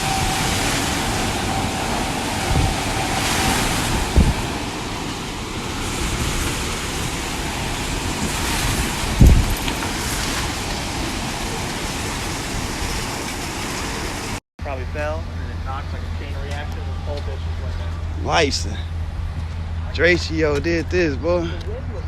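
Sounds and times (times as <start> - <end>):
gusts buffeting microphone: 0.0 - 14.4
strong wind rushing: 0.0 - 14.4.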